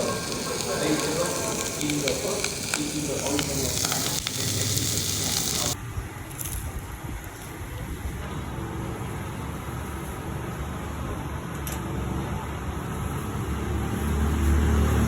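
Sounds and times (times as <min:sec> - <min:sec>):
food sizzling on a griddle: 0:00.0 - 0:05.8.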